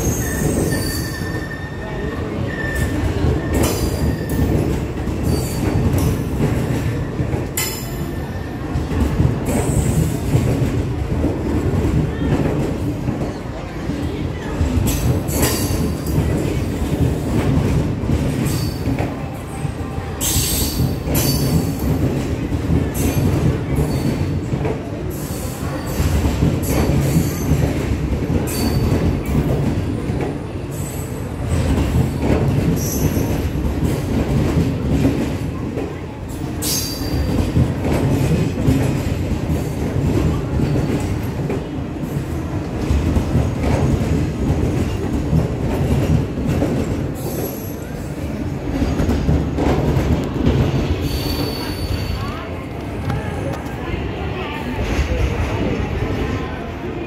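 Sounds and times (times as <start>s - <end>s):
high wheel squeals: 0.0s - 3.0s, 51.0s - 52.2s
train wheels rumbling on rails: 0.0s - 57.0s.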